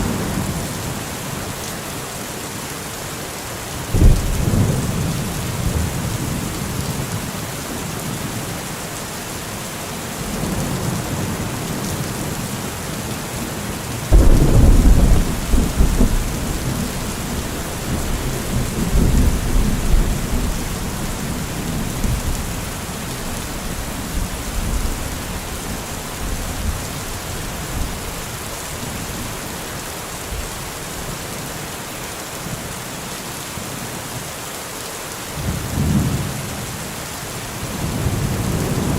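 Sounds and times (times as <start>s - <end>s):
heavy rain hissing: 0.0s - 38.9s
rolling thunder: 3.9s - 6.5s, 14.1s - 22.8s.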